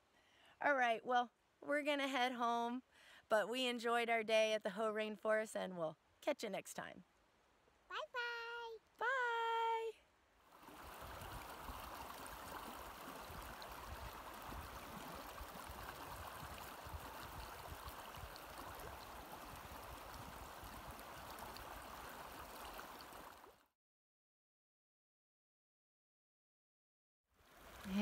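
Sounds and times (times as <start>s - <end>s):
stream water rushing: 10.4s - 23.6s, 27.4s - 28.0s.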